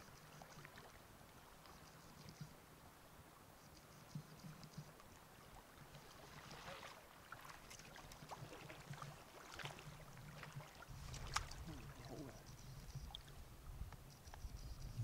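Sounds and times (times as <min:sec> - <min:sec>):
stream water splashing: 0:04.9 - 0:13.6.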